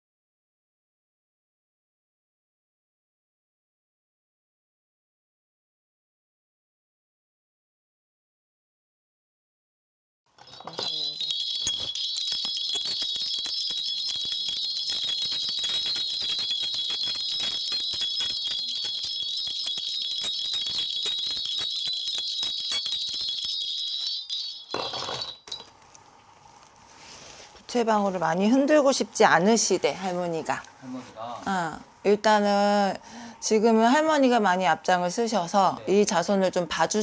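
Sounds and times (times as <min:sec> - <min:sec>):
brass bells jingling: 0:10.4 - 0:25.8.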